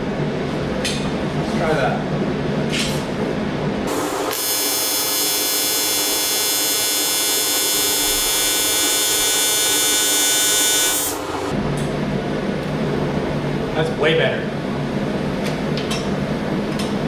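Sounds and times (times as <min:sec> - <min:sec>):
welding arc buzzing: 0:03.9 - 0:11.6.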